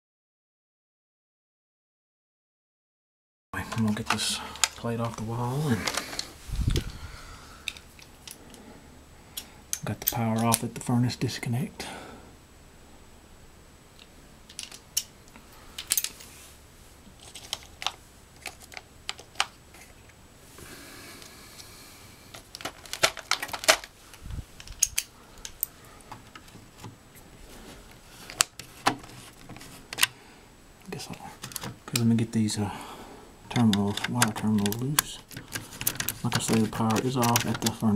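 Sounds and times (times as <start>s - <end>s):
rustling scrape: 16.0s - 17.6s, 27.4s - 29.9s.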